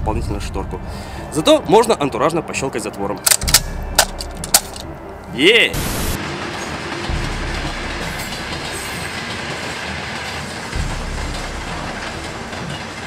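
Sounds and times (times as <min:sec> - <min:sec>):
train rumbling past: 0:05.8 - 0:13.0.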